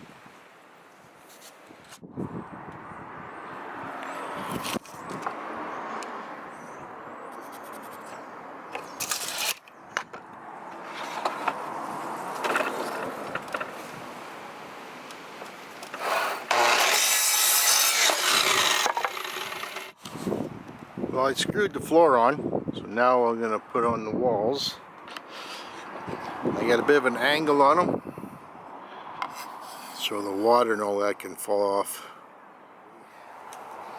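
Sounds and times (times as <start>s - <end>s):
wood scraping and rubbing: 8.8s - 9.7s, 10.7s - 14.2s, 15.4s - 20.3s.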